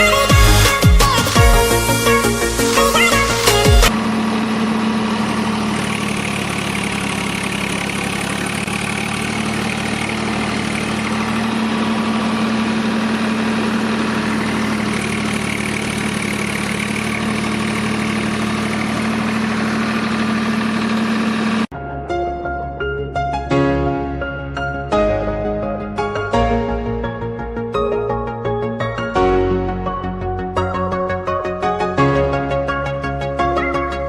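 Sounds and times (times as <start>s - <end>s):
tractor engine idling: 0.0s - 21.7s.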